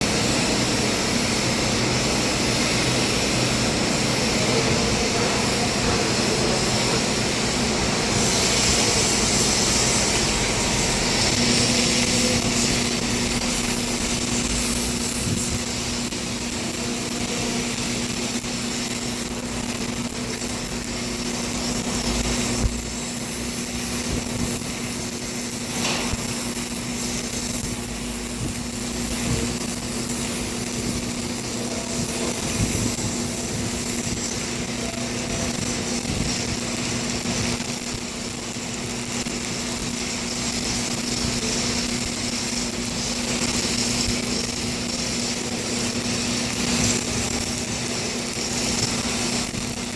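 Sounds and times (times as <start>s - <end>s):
steady machine hum: 0.0s - 49.9s
welding arc hiss and crackle: 0.0s - 49.9s.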